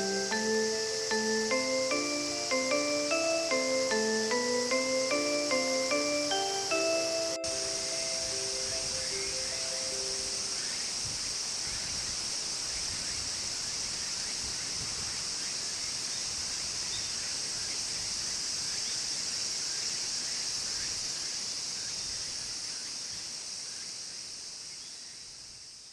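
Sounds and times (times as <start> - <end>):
high-pitched insect chorus: 0.0 - 25.9.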